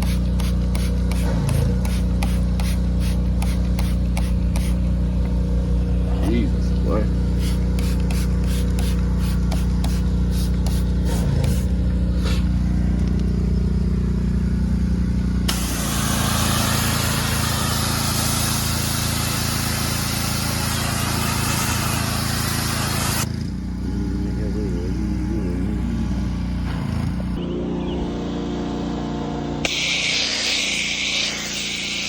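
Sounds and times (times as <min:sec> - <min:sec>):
water jet hissing: 0:00.0 - 0:04.8, 0:07.3 - 0:12.4, 0:15.5 - 0:23.3, 0:29.7 - 0:32.0
pressure washer engine running: 0:00.0 - 0:32.0
rhythmic engine strokes: 0:00.0 - 0:32.0.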